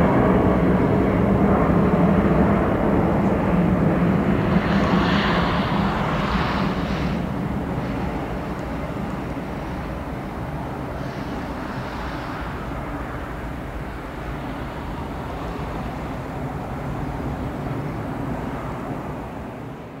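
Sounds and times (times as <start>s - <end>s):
airliner engine rumble: 0.0s - 20.0s.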